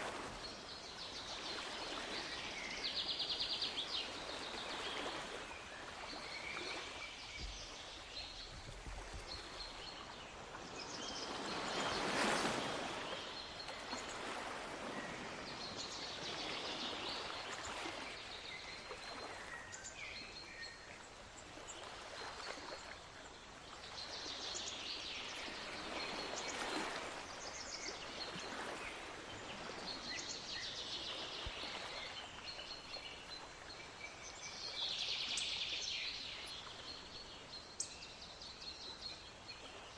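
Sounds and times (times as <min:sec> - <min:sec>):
sea waves washing in: 0:00.0 - 0:19.6.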